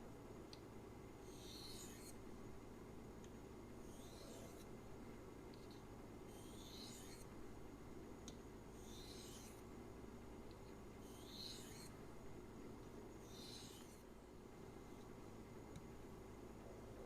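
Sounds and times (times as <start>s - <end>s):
knife scraping on sharpener: 1.3s - 2.2s, 3.9s - 4.6s, 6.3s - 7.3s, 8.8s - 9.6s, 11.0s - 11.9s, 13.2s - 14.0s.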